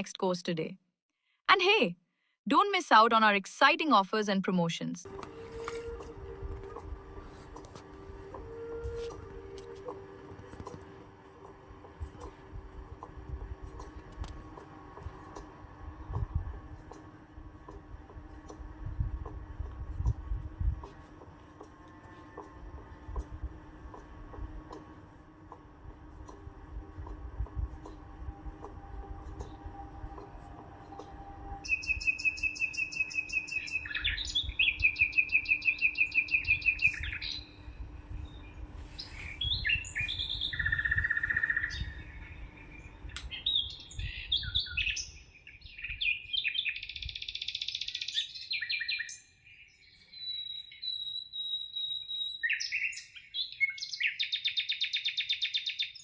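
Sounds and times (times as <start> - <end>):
faint steady hum: 5.1 - 46.0
songbirds singing: 23.6 - 56.0.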